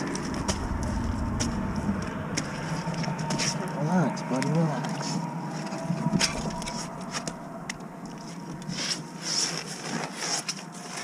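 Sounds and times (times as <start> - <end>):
fish scraping and clicking: 0.0 - 11.0.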